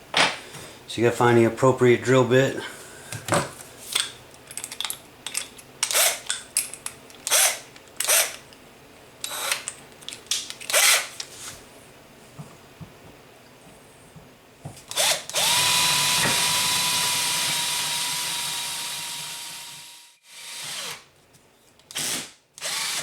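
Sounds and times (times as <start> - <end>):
drill bits and tools clinking: 4.0 - 8.4, 9.2 - 9.8, 10.6 - 11.1, 14.9 - 21.0.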